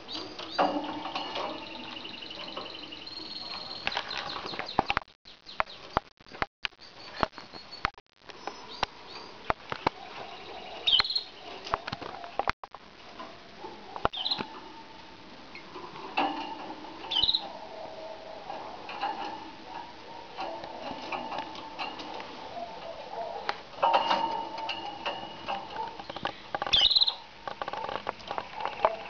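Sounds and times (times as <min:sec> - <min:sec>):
canaries chirping: 0:00.0 - 0:12.5, 0:14.0 - 0:14.6, 0:15.5 - 0:29.0
sharp clicks and taps in cage: 0:23.4 - 0:29.0.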